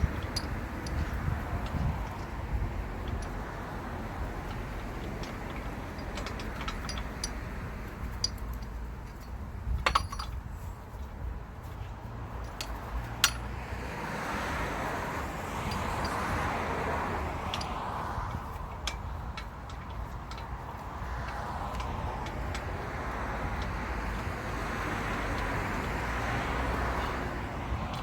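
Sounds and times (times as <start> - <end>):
metallic clinks of tools: 4.7 - 7.4, 8.1 - 10.4.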